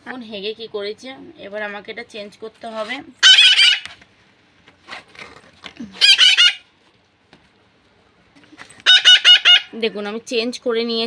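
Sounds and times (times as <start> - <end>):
parakeets screeching: 3.2 - 4.0, 6.0 - 6.7, 8.8 - 9.8.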